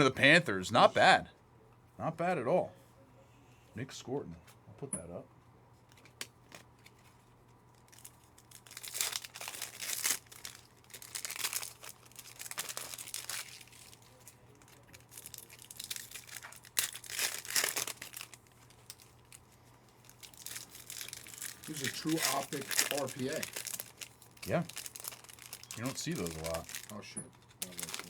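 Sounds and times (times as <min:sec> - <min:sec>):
foil wrapper crinkling and tearing: 0:05.9 - 0:28.0.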